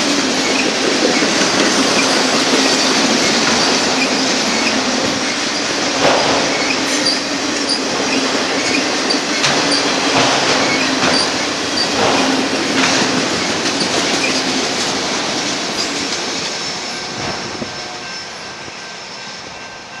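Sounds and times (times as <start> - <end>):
freight cars rolling on rails: 0.0 - 20.0
high wheel squeal: 6.4 - 10.0, 10.6 - 12.0.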